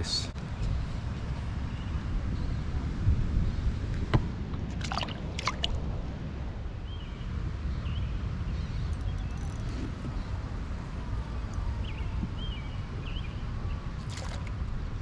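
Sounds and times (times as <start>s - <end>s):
wind rumble on microphone: 0.0s - 15.0s
water splashes: 4.7s - 6.1s, 14.0s - 14.6s
water sloshing and gurgling: 4.7s - 6.2s, 14.0s - 14.6s.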